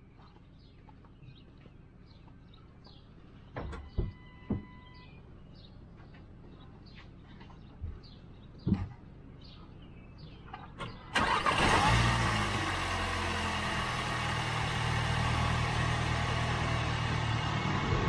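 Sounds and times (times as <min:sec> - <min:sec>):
car engine starting and idling: 0:11.1 - 0:18.0.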